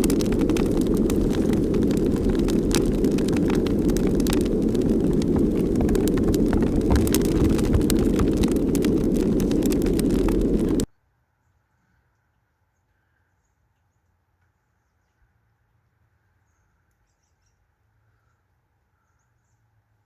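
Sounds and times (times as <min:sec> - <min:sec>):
small clicks and crackles: 0:00.0 - 0:10.9
wind blowing over microphone: 0:00.0 - 0:10.9.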